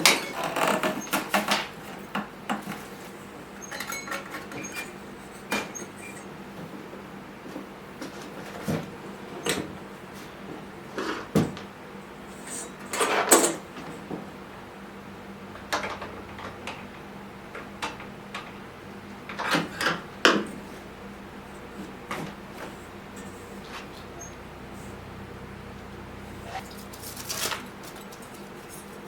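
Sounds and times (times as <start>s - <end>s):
objects knocking and clattering: 0.0s - 6.0s, 15.6s - 16.9s
steady low hum: 1.7s - 29.0s
scraping rustle: 26.3s - 29.0s.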